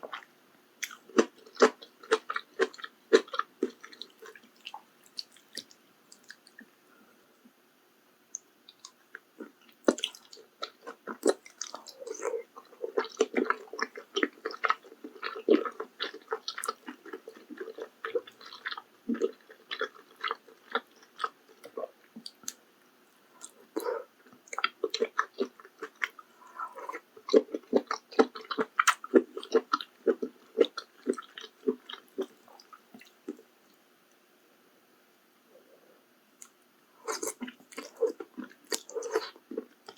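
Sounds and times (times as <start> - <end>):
wet chewing and biting: 23.4 - 33.4.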